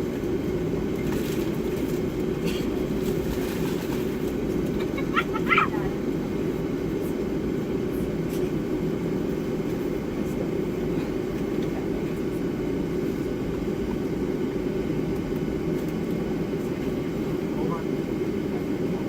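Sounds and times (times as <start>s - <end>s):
jet engines idling: 0.0s - 19.0s.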